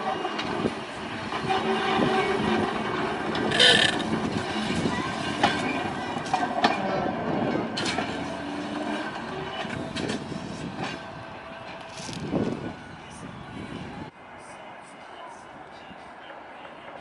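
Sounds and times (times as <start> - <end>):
railway car rumble: 0.0 - 17.0
wheels clicking over rail joints: 2.4 - 12.7.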